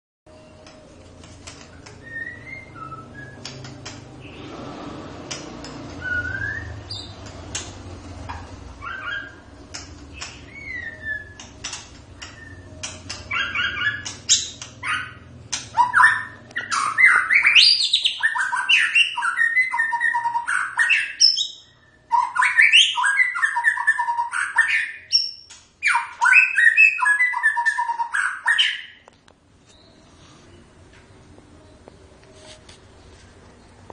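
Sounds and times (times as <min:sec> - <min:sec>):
bird singing whistled phrases: 0:02.0 - 0:03.5, 0:06.0 - 0:07.1, 0:10.2 - 0:11.4, 0:13.3 - 0:29.0.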